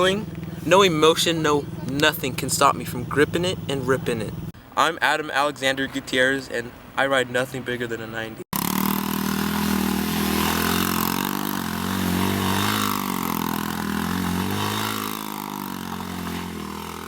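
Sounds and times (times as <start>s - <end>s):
dirt bike engine revving: 0.0s - 4.6s, 8.6s - 17.0s.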